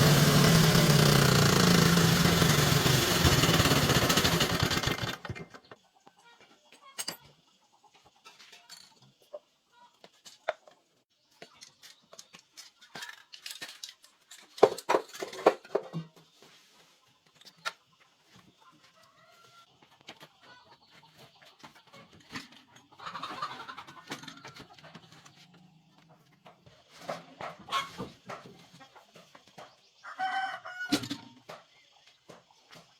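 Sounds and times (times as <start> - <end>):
chickens clucking: 5.2 - 13.1, 14.9 - 32.9.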